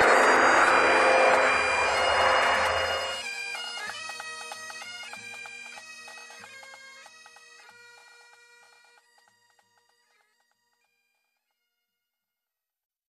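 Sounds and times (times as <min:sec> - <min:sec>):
loud rushing noise: 0:00.0 - 0:03.2.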